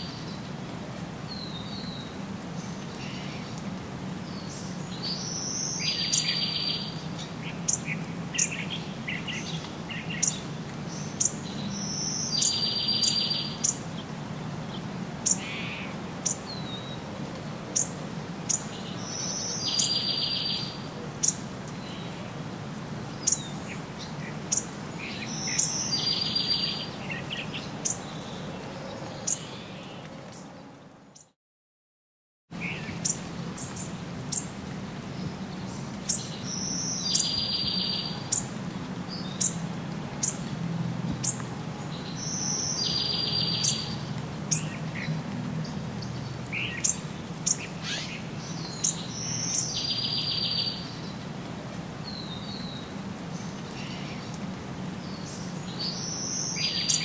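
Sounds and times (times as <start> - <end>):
songbird song with buzzy trill: 4.3 - 13.9, 17.8 - 22.0, 24.5 - 28.3, 35.7 - 38.5, 42.0 - 44.7, 46.0 - 51.1.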